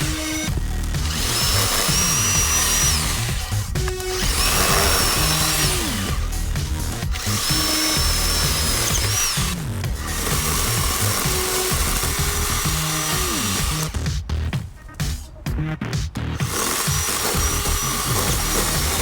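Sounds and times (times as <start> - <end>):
chainsaw cutting branches: 0.0 - 14.7, 16.4 - 19.0
background music: 0.0 - 19.0.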